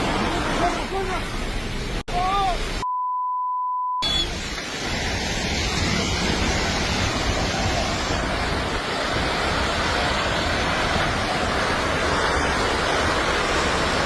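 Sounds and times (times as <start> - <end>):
censor beep: 2.8 - 4.4
loud rushing noise: 4.3 - 14.0.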